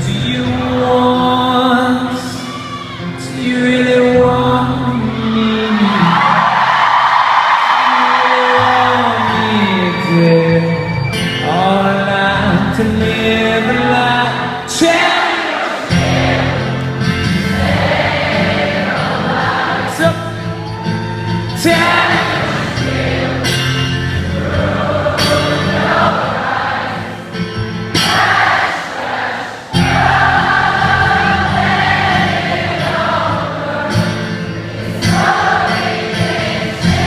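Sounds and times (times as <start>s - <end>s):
many voices singing: 3.4s - 37.0s
live rock band playing: 15.9s - 28.6s, 29.7s - 37.0s.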